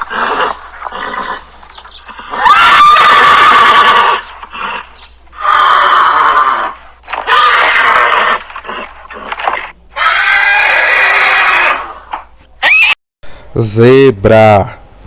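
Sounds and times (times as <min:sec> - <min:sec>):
horse neighing: 0:02.1 - 0:13.0.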